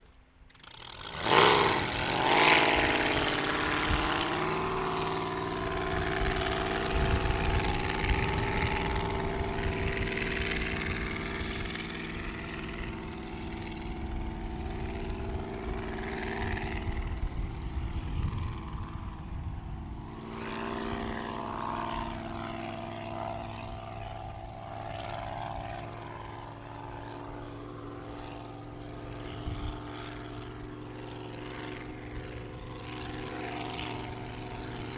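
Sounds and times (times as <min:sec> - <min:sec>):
model boat engine passing: 0:00.4 - 0:34.9.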